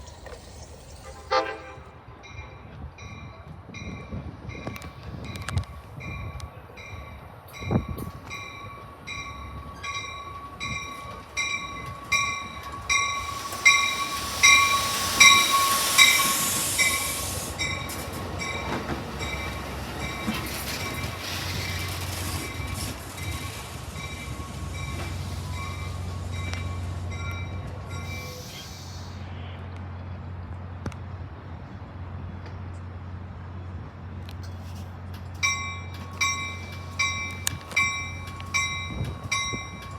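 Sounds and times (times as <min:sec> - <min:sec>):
train bell ringing: 0:00.8 - 0:28.4, 0:35.4 - 0:39.9
loud hiss: 0:12.0 - 0:27.2, 0:28.0 - 0:29.3.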